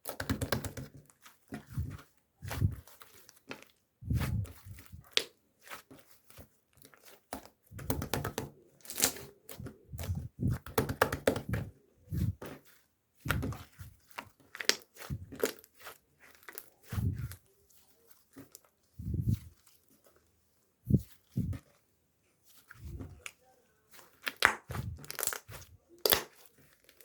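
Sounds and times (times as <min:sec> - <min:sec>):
rustling and crinkling: 0:00.0 - 0:07.8, 0:08.5 - 0:27.0
soft low thumps: 0:04.0 - 0:05.0, 0:09.6 - 0:10.7, 0:19.0 - 0:19.5, 0:20.9 - 0:21.6.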